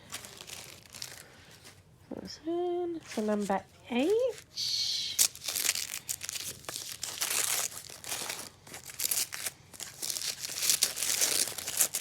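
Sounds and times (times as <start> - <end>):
wrapping crinkling and tearing: 0.0 - 1.9, 3.1 - 12.0.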